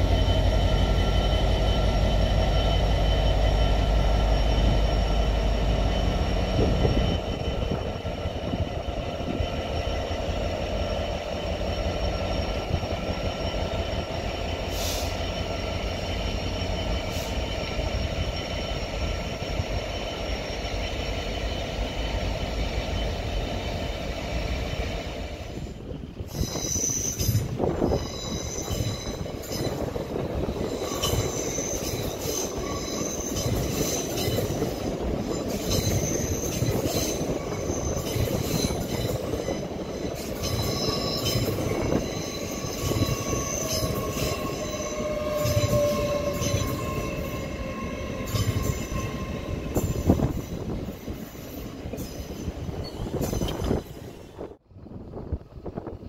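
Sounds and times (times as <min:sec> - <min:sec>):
train wheels rumbling: 0:00.0 - 0:56.0
high-pitched wheel squealing: 0:26.3 - 0:54.2.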